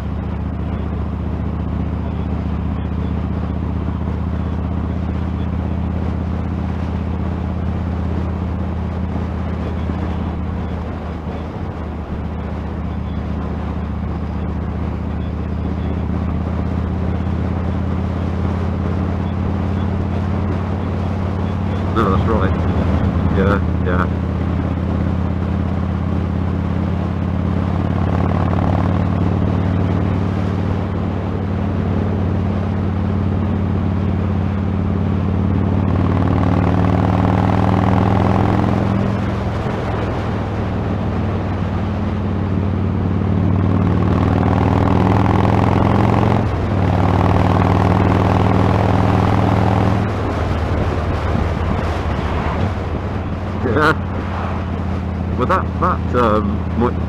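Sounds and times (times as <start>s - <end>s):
motorcycle engine running: 0.0s - 57.0s
wind noise on microphone: 49.4s - 55.4s.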